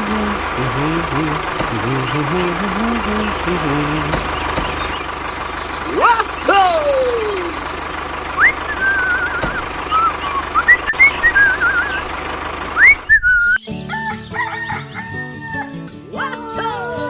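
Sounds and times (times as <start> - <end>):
mechanical hum: 0.0 - 13.6
warbling bird-like whistles: 5.2 - 12.0, 12.8 - 13.7.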